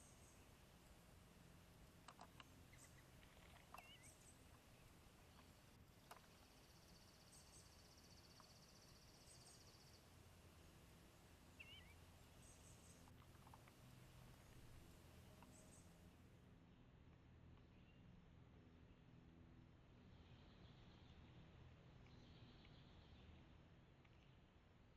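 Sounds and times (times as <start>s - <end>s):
low background hum: 0.0s - 24.9s
wavering bird chirp: 2.7s - 4.4s, 11.5s - 13.6s.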